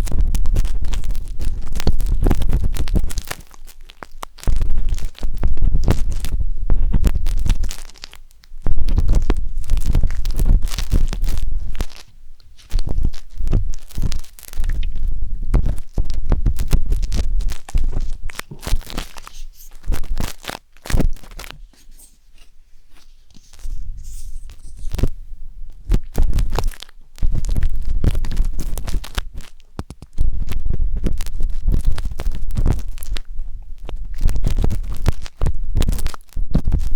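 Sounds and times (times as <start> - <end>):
rumbling handling noise: 8.6 - 29.4
skewer scraping microphone: 12.6 - 26.6.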